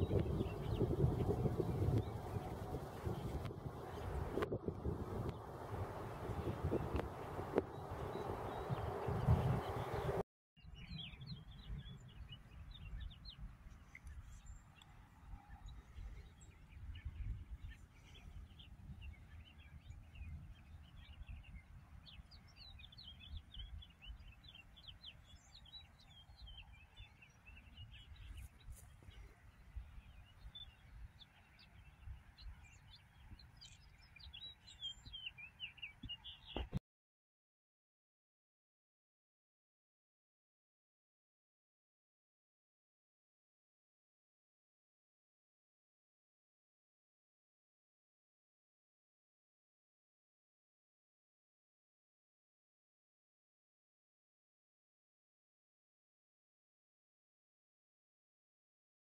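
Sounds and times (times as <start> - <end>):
small birds chirping: 0.0 - 4.5, 5.2 - 36.8.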